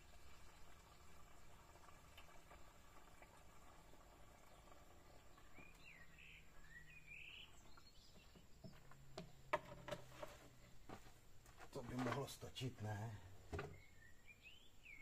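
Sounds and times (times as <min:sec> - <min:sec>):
faint bird chirping: 0:03.6 - 0:09.5, 0:12.8 - 0:15.0.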